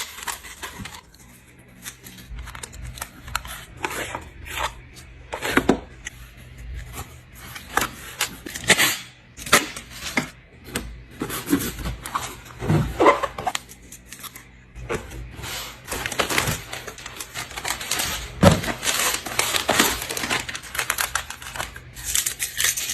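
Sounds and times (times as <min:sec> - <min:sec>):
packaging crinkling and rustling: 0:00.0 - 0:05.8, 0:11.2 - 0:22.9.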